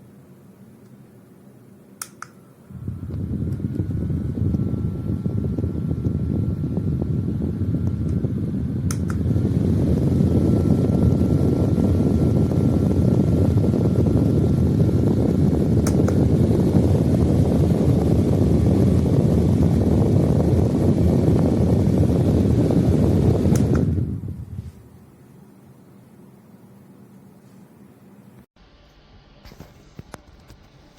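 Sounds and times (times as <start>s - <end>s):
desk fan air rushing: 1.7s - 27.8s
fan switch click: 2.0s - 2.4s, 7.8s - 9.3s, 15.8s - 16.2s, 23.5s - 24.0s.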